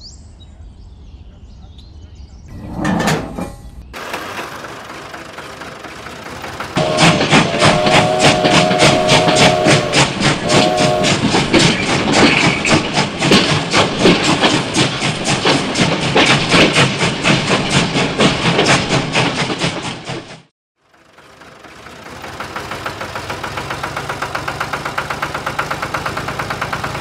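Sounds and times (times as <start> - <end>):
toy steam train chuffing: 4.0 - 20.2, 20.8 - 27.0
train whistle: 6.7 - 11.7.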